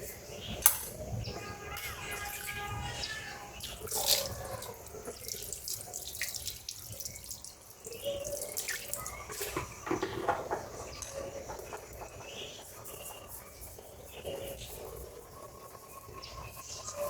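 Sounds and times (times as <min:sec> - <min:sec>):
water running and splashing: 0:03.6 - 0:12.1.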